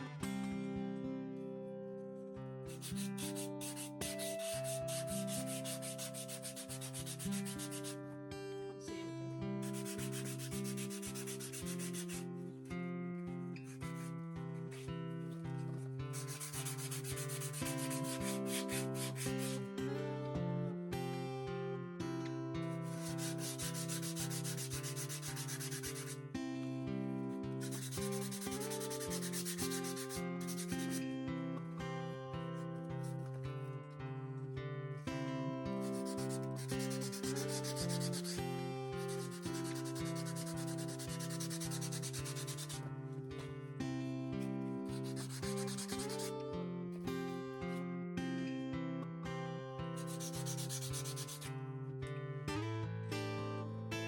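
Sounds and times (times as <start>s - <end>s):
quiet background music: 0.0s - 54.0s
sandpaper rubbing on painting: 2.7s - 8.0s, 9.6s - 12.2s, 16.2s - 19.6s, 22.9s - 26.2s, 27.6s - 31.0s, 35.8s - 38.4s, 39.0s - 42.8s, 44.9s - 46.3s, 50.0s - 51.5s.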